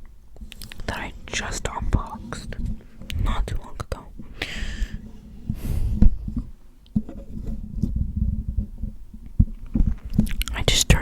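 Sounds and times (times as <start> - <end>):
low rumble: 1.7 - 4.3
handling noise rubbing and tapping: 4.9 - 10.4.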